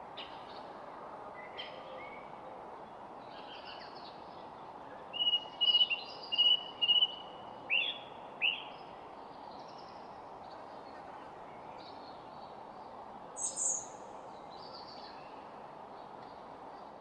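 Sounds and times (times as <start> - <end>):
steady background hiss: 0.0 - 17.0
wild birds calling: 13.4 - 14.0.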